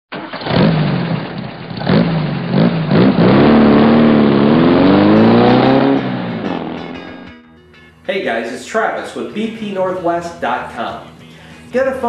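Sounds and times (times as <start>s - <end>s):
car engine revving: 0.2s - 7.4s.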